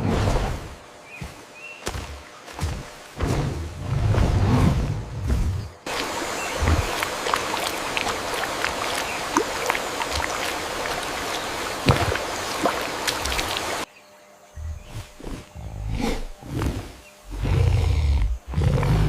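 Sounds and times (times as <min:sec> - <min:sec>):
water running and splashing: 0:05.9 - 0:13.9.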